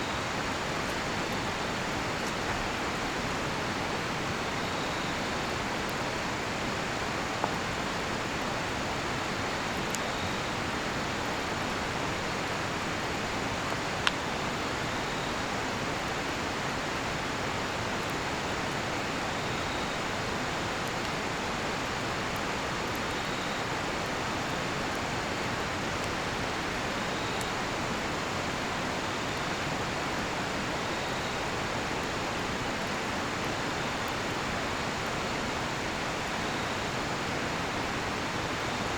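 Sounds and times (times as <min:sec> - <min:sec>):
river rushing: 0:00.0 - 0:38.9
crickets chirping: 0:03.6 - 0:05.8, 0:09.2 - 0:11.4, 0:23.0 - 0:23.8, 0:26.2 - 0:27.9, 0:28.8 - 0:32.1.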